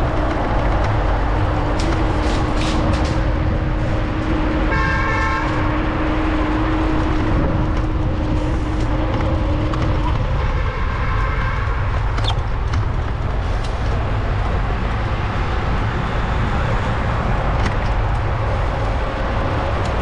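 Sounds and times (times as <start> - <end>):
street traffic: 0.0 - 20.0
wind on microphone: 0.0 - 20.0
vehicle horn honking: 4.7 - 5.8.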